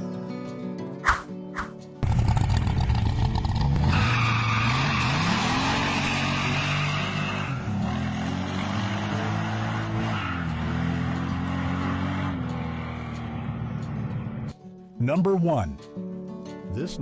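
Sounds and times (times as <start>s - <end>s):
car engine revving: 2.0s - 14.5s
tyres squealing: 3.5s - 11.2s.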